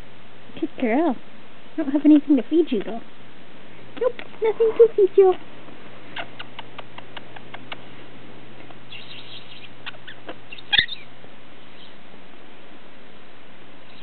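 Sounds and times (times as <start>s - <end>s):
parrot clicking: 6.2s - 7.8s
parrot chirp: 8.9s - 12.0s.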